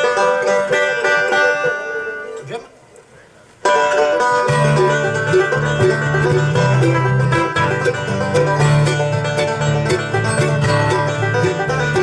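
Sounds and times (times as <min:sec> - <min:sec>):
acoustic bluegrass string band: 0:00.0 - 0:12.0.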